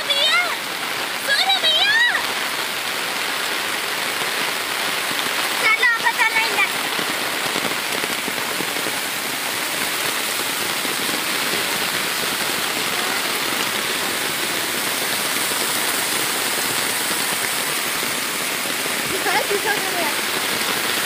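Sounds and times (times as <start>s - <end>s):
heavy rain pouring: 0.0s - 21.0s
rainwater rushing over ground: 0.0s - 21.0s.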